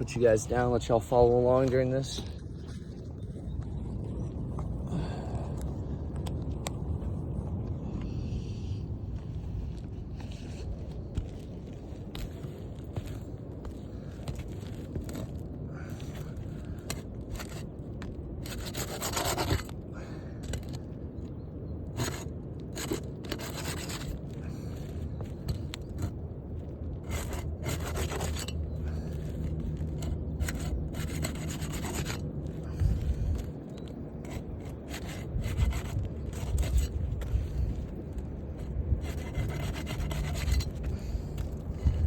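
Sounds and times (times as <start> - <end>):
tool scraping under shingles: 12.1 - 20.9, 21.9 - 26.3, 26.9 - 42.0.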